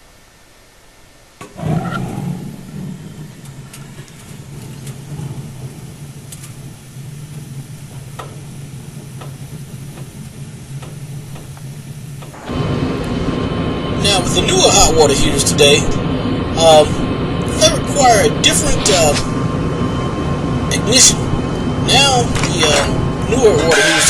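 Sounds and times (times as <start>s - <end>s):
gas burner lighting whoosh: 1.4s - 17.3s
burner low rumble: 1.5s - 24.0s
faint ticks: 3.3s - 12.4s.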